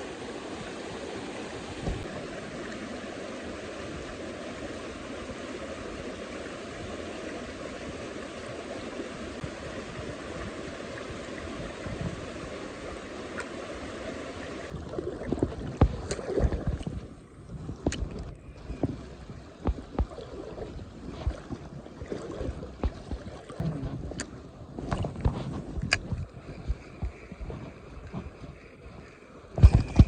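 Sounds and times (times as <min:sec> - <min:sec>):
stream rushing: 0:00.0 - 0:17.1
water sloshing around legs: 0:14.6 - 0:17.1, 0:17.8 - 0:30.0
footsteps on stones in water: 0:15.3 - 0:17.0, 0:17.8 - 0:29.0.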